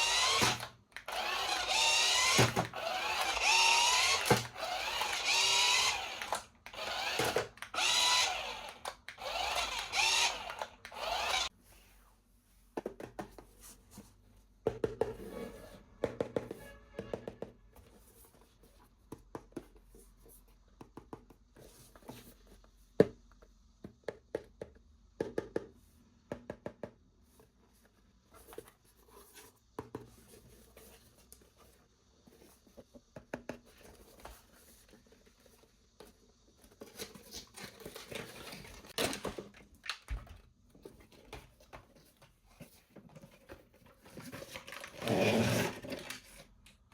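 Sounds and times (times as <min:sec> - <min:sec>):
packaging rustling and tearing: 0:44.2 - 0:46.5.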